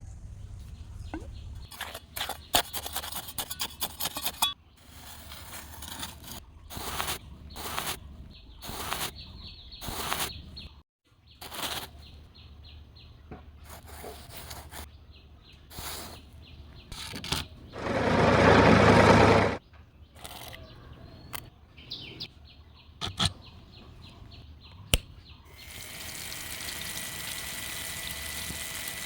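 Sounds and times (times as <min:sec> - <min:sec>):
grass scraping through cutter: 0:02.8 - 0:08.0, 0:08.6 - 0:09.1, 0:09.8 - 0:10.4, 0:17.8 - 0:19.6
small motor humming: 0:17.8 - 0:19.6, 0:25.6 - 0:29.0.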